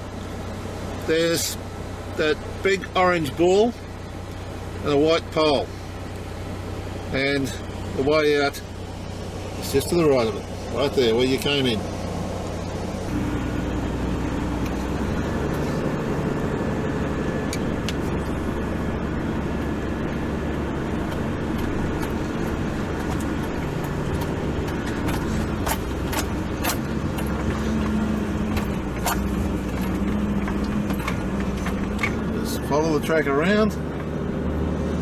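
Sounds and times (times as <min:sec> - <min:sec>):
vehicle engine running: 0:00.0 - 0:35.0
knocks and rattles: 0:19.6 - 0:32.4.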